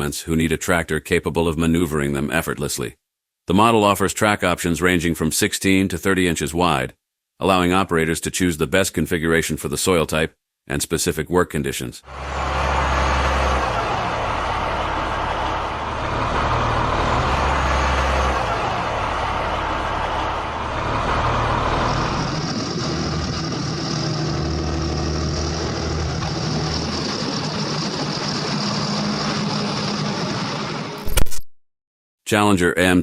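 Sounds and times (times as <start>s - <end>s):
tractor diesel engine running: 12.1s - 30.9s.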